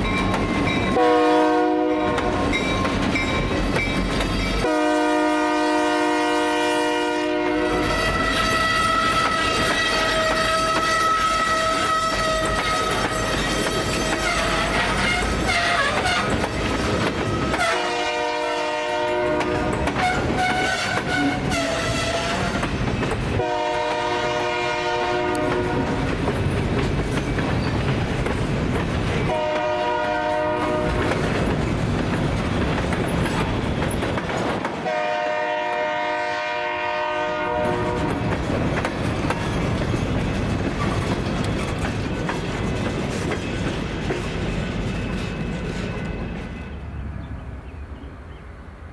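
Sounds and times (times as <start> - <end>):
wheels clattering on rail joints: 0.0 - 1.4, 2.0 - 4.7, 7.8 - 35.0, 37.6 - 46.8
locomotive air horn: 0.9 - 2.5, 4.6 - 16.4, 17.2 - 22.7, 23.4 - 26.0, 29.3 - 31.0, 34.8 - 38.2.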